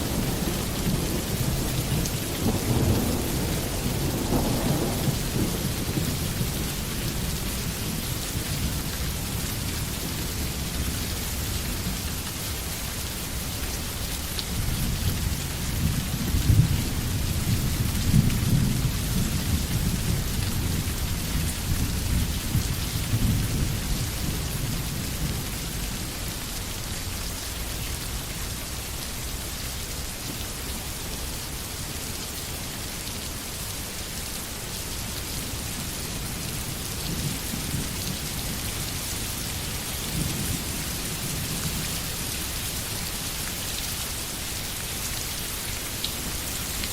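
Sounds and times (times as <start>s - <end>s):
thunder rumbling: 0.0s - 7.6s
steady rain falling: 0.0s - 46.9s.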